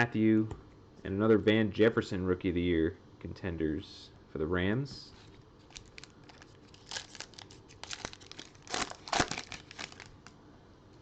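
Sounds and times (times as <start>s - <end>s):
wrapper tearing and crinkling: 5.6s - 10.3s.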